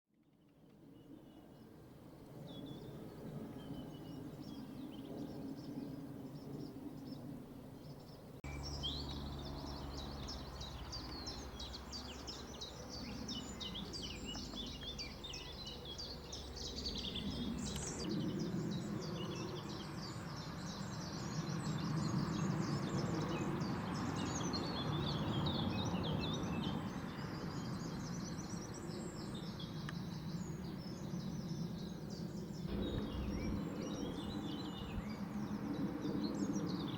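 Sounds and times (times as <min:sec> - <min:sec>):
small birds chirping: 0:00.4 - 0:36.9
low outdoor rumble: 0:08.4 - 0:18.8, 0:32.6 - 0:36.9.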